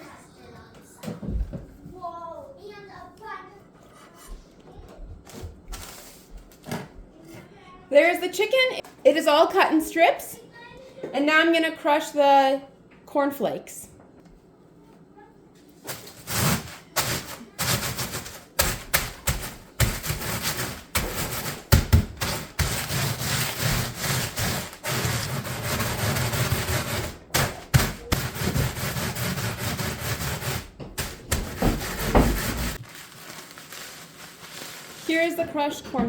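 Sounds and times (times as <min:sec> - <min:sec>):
cornflakes crunching and rustling: 0:31.9 - 0:35.4.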